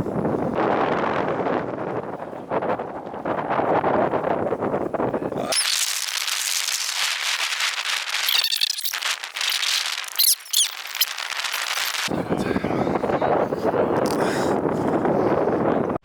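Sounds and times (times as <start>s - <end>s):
high crackling hiss: 5.4s - 12.1s
short chirps: 5.5s - 12.1s.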